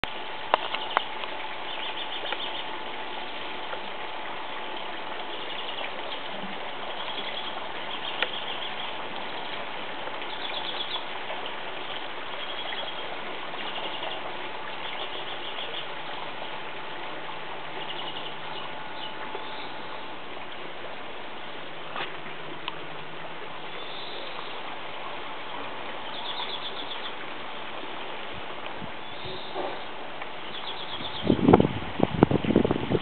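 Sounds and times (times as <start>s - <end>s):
steady hiss: 0.0s - 33.0s
songbirds trilling: 0.5s - 3.8s, 4.5s - 17.0s, 17.6s - 20.2s, 23.6s - 28.0s, 29.0s - 31.6s.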